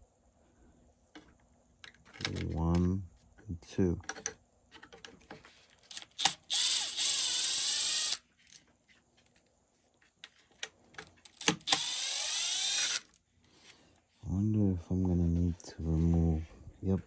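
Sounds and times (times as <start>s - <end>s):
small handling clicks: 1.1s - 3.4s, 4.0s - 6.5s
power screwdriver running: 5.9s - 8.2s, 11.4s - 13.1s.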